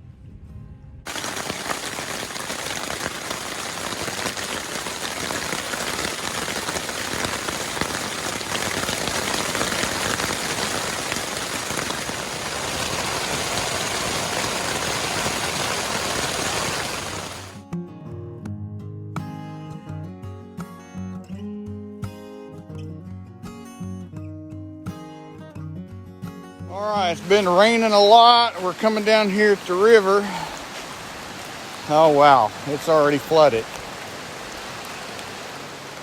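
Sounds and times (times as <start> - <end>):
heavy rain falling: 1.1 - 17.6, 26.7 - 36.0.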